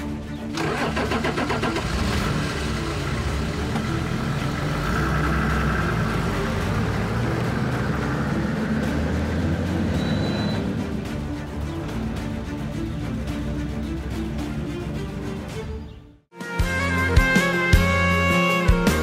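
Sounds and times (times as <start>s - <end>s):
car engine running: 0.6s - 15.4s.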